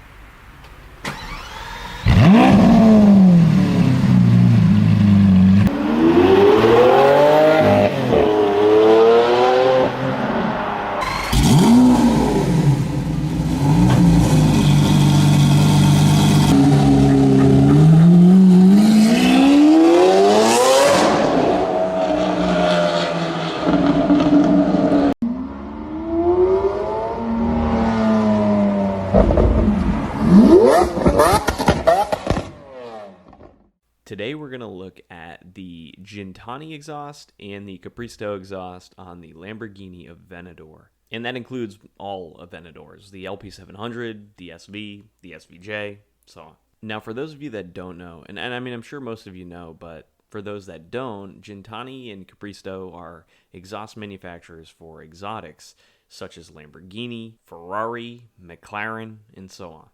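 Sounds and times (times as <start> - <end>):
car engine revving hard: 1.3 - 33.4.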